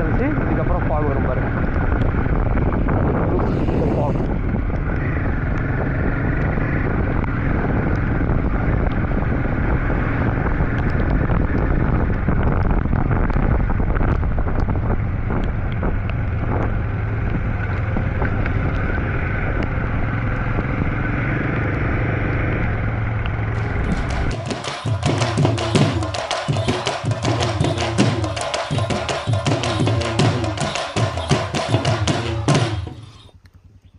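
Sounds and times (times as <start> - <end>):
wind rushing over microphone: 0.0 - 24.6
motorcycle engine running: 0.0 - 33.4.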